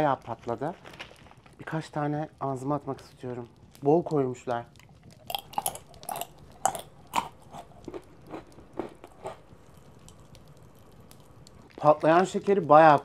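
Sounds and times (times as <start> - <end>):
popping candy crackling: 0.0 - 13.0
chewing crunchy snack: 0.2 - 1.8, 4.6 - 11.9.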